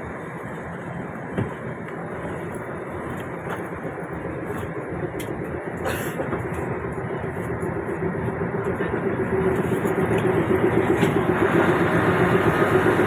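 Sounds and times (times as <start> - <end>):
toy train rumble and rattle: 5.4 - 13.0.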